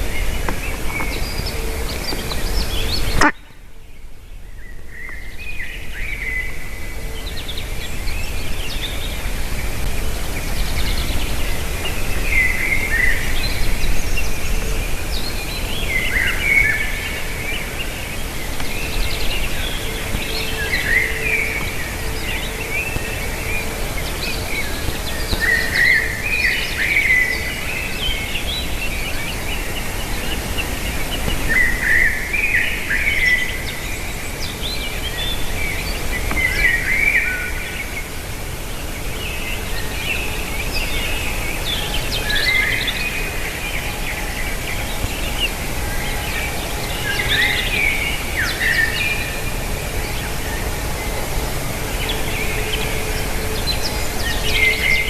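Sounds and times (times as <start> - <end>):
birds chirping: 0.0 - 55.0
outdoor background noise: 0.0 - 55.0.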